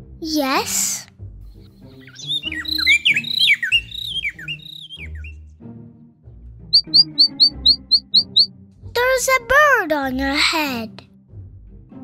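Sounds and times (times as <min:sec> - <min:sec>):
soft background music: 0:00.0 - 0:12.0
small songbird chirping: 0:01.6 - 0:05.4, 0:06.7 - 0:08.5.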